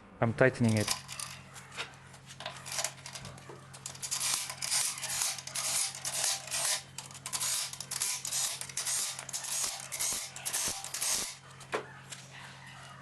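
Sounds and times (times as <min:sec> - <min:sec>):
ratchet wrench clicking: 0:02.4 - 0:11.4.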